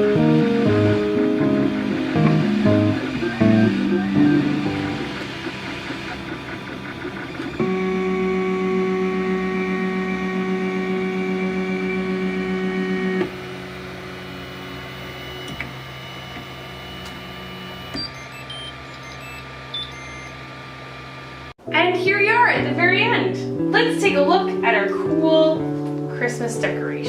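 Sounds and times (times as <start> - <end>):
three d printer stepper motors whining: 0.0 - 21.5.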